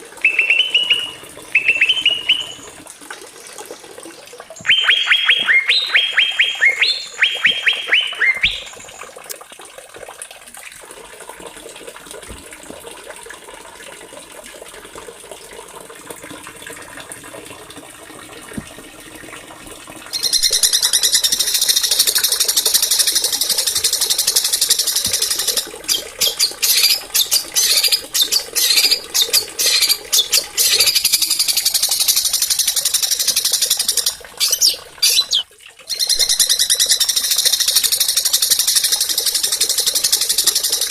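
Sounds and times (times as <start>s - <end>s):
small songbirds singing: 0.2s - 2.7s, 4.6s - 8.9s, 20.2s - 40.9s.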